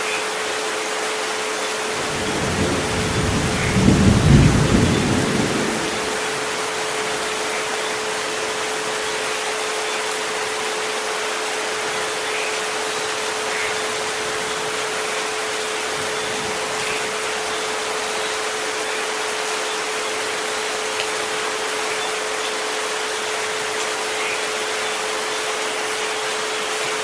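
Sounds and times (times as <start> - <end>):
steady rain: 0.0 - 27.0
low rumble of thunder: 2.0 - 7.5.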